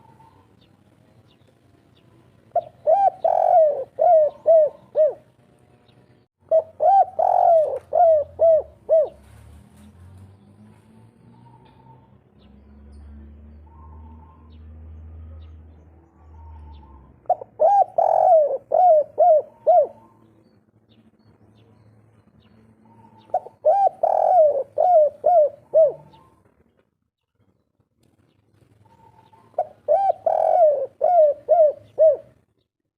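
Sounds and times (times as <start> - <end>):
dove cooing: 2.5 - 5.3, 6.4 - 9.4, 16.1 - 20.3, 22.8 - 26.5, 28.8 - 32.4.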